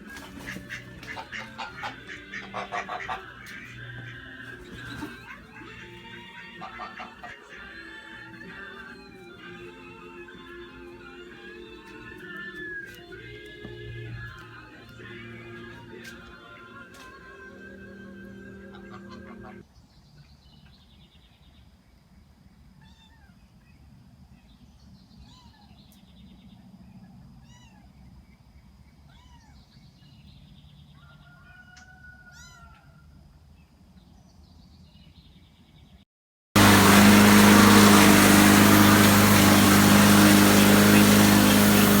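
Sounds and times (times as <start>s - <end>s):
kitten meows: 22.8s - 23.3s, 25.2s - 25.8s, 27.4s - 27.9s, 29.1s - 29.6s
loud steady noise with low hum: 36.6s - 42.0s.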